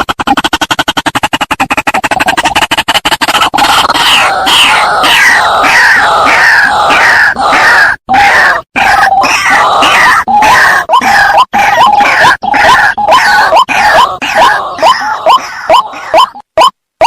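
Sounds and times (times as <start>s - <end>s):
bird calls sliding upward: 0.0s - 6.6s
noisy distorted background: 0.0s - 16.7s.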